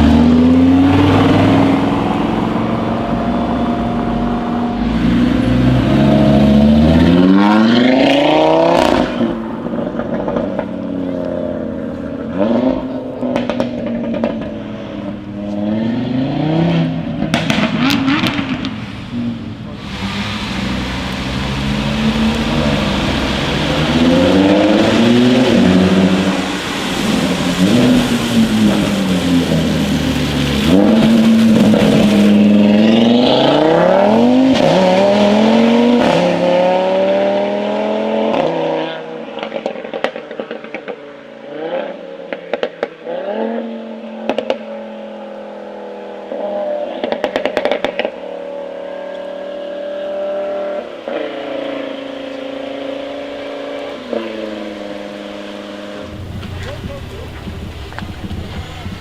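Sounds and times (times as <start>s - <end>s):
car engine revving: 0.0s - 40.5s, 41.5s - 59.0s
exhaust pops and crackles: 9.6s - 12.3s, 13.2s - 15.6s, 17.2s - 18.8s, 19.7s - 32.8s, 39.4s - 41.0s, 46.9s - 48.3s, 56.0s - 59.0s
exhaust bangs: 12.2s - 37.2s, 55.9s - 59.0s
car engine idling: 19.4s - 25.1s, 56.0s - 59.0s.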